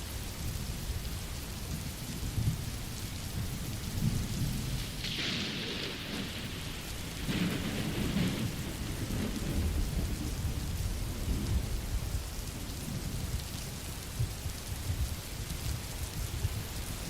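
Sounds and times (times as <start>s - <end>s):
steady rain: 0.0s - 17.0s
rolling thunder: 4.0s - 12.2s.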